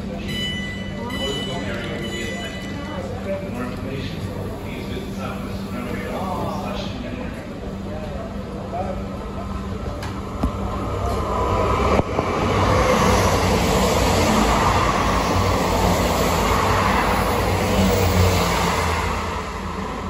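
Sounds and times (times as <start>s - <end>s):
train wheels rumbling: 9.2s - 20.0s.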